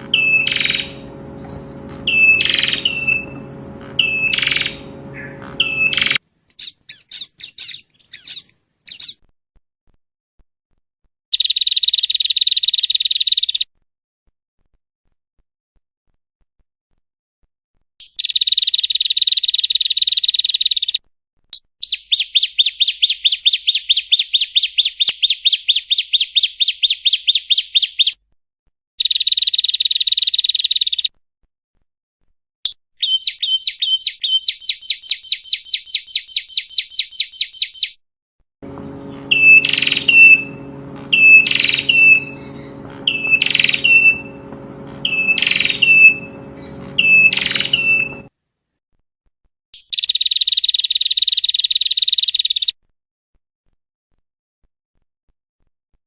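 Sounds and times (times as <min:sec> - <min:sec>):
low hum: 0:00.0 - 0:06.2, 0:38.6 - 0:48.3
buzzy bird trills: 0:00.0 - 0:09.2, 0:38.6 - 0:48.3
downslurred bird calls: 0:00.0 - 0:09.2, 0:38.6 - 0:48.3.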